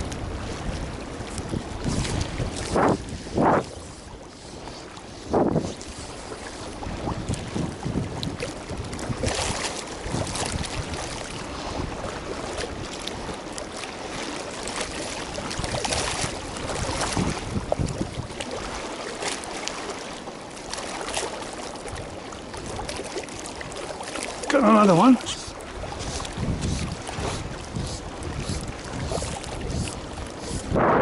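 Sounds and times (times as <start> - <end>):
wind buffeting microphone: 0.0 - 19.0, 21.8 - 31.0.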